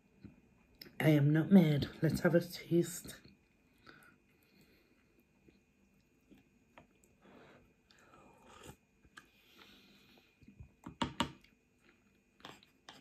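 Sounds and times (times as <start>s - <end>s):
person chewing noodles: 3.7s - 10.6s, 11.4s - 13.0s
person sipping broth: 6.8s - 10.5s.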